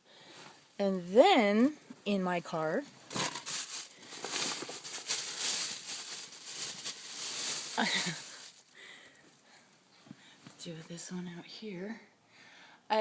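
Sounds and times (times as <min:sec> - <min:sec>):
rustling and crinkling items: 0:02.8 - 0:09.4.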